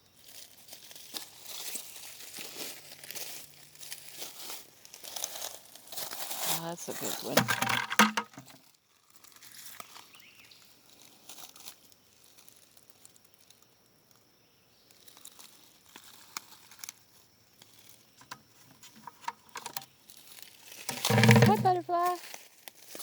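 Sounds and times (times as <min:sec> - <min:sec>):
dry leaves crackling: 0:00.2 - 0:07.4.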